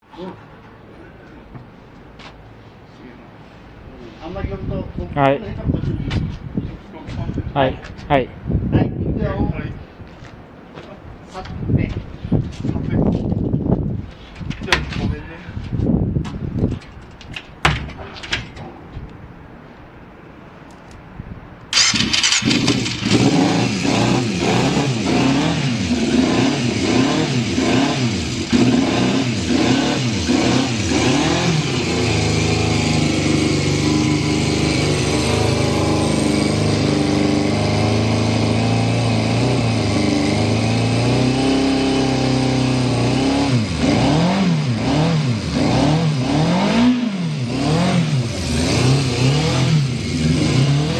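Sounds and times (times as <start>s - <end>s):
motorcycle engine starting: 21.7s - 50.9s
motorcycle engine revving and idling: 21.8s - 50.9s.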